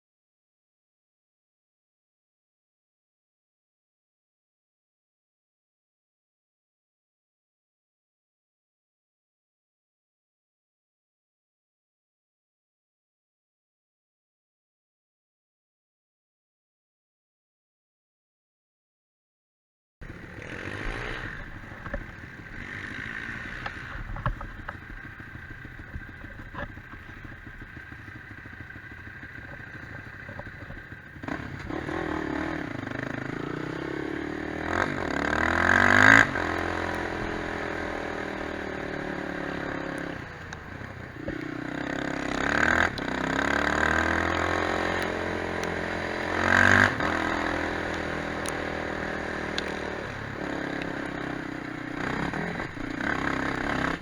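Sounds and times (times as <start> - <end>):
quad bike engine revving: 20.0 - 54.0.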